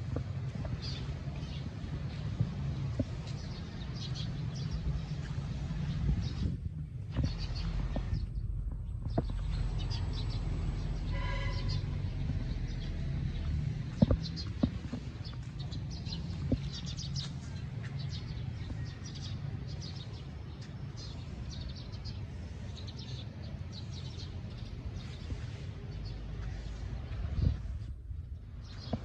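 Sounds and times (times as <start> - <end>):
small birds chirping: 0.0 - 29.0
steady low rumble: 0.0 - 29.0.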